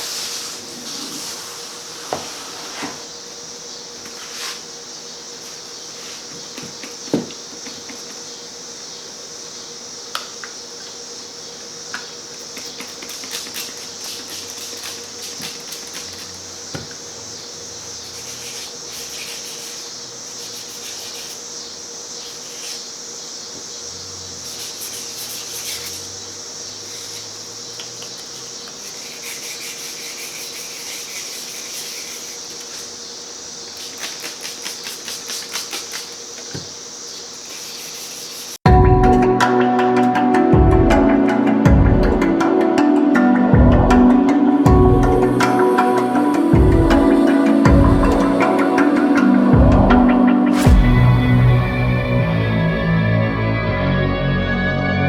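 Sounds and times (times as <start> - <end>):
sandpaper rubbing strokes: 0.0 - 8.3, 12.4 - 23.1, 24.3 - 38.6
steady hiss: 0.0 - 38.6, 45.3 - 49.6.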